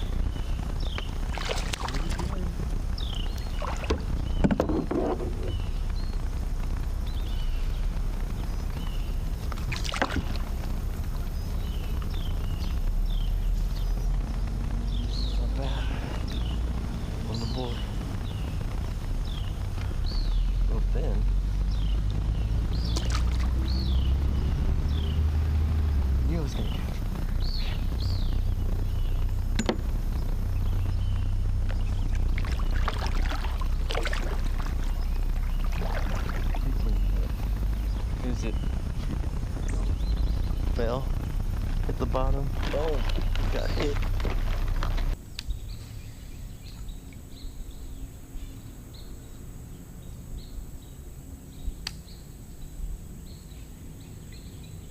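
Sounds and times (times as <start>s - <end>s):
splashing: 0.0s - 45.2s
small birds chirping: 0.0s - 54.9s
steady low rumble: 0.0s - 54.9s.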